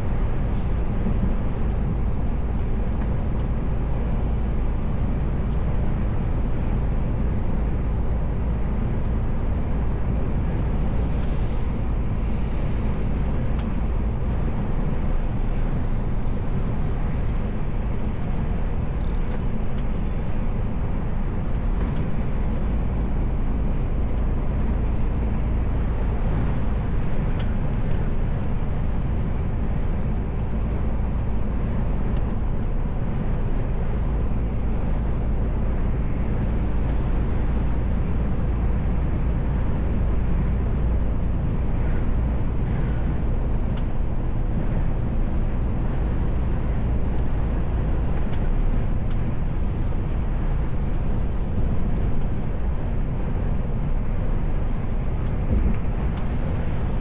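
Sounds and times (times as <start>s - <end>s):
truck engine and road noise: 0.0s - 57.0s
brief air hiss: 11.0s - 13.2s.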